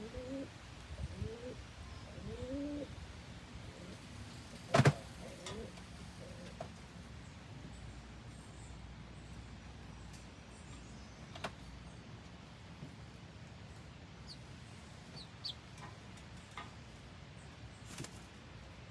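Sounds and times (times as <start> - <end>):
chicks peeping: 14.2 - 15.7.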